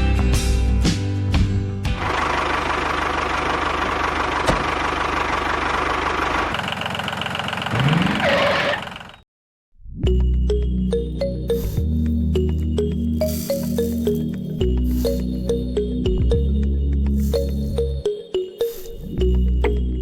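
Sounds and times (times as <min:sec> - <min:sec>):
music: 0:00.0 - 0:02.1, 0:09.9 - 0:20.0.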